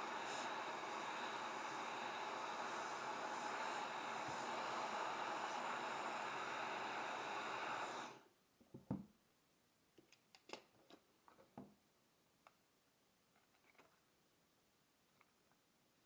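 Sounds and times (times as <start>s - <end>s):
hair dryer blowing: 0.0s - 8.3s.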